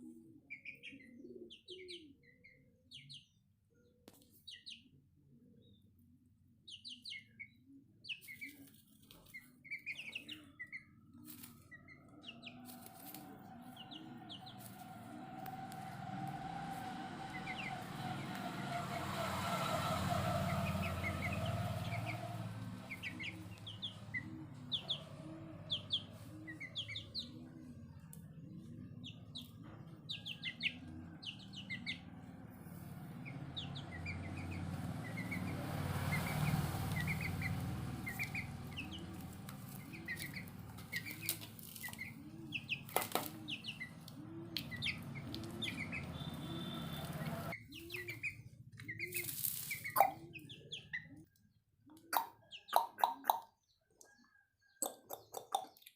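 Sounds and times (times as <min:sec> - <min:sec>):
chicks peeping: 0:00.5 - 0:03.3, 0:06.7 - 0:51.4, 0:52.0 - 0:55.9.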